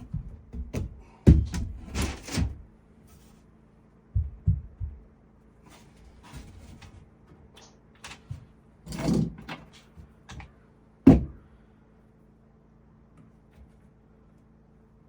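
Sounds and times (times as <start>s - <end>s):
wood knocking and clattering: 0.0s - 2.6s
scraping rustle: 5.6s - 7.1s.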